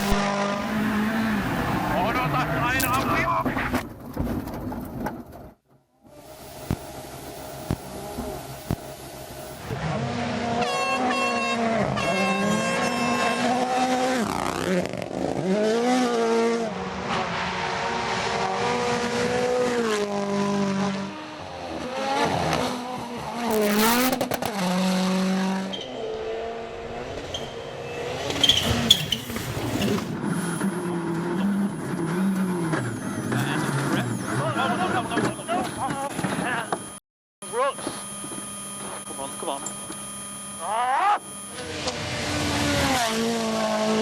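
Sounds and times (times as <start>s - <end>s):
rally car engines screaming: 0.0s - 3.8s, 9.5s - 36.7s, 40.6s - 44.0s.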